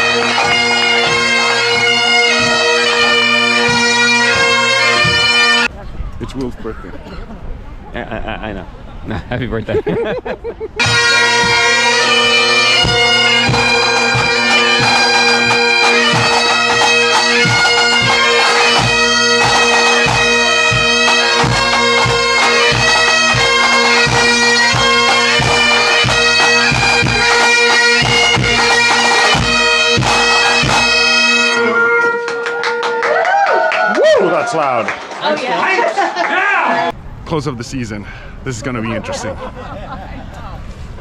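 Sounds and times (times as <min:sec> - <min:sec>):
bagpipes playing over drones: 0:00.0 - 0:05.7, 0:10.8 - 0:33.0
drums beating: 0:00.0 - 0:05.7, 0:09.8 - 0:35.1.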